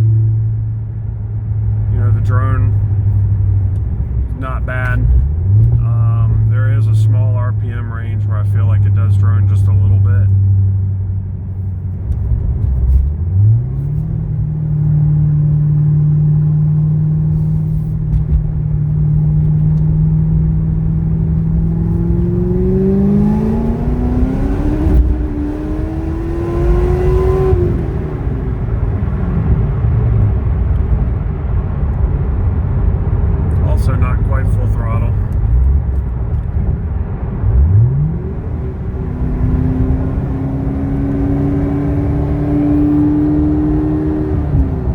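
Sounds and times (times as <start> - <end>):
car engine revving: 11.5 - 31.0, 37.4 - 44.9.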